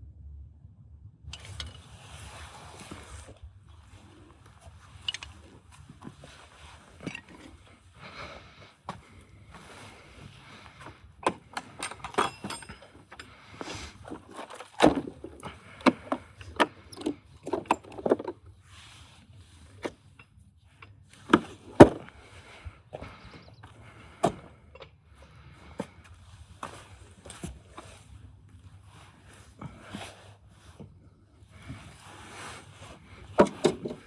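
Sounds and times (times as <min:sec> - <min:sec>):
tools and metal parts clinking: 0:01.3 - 0:01.9, 0:04.9 - 0:07.8, 0:10.5 - 0:18.4, 0:33.2 - 0:34.0.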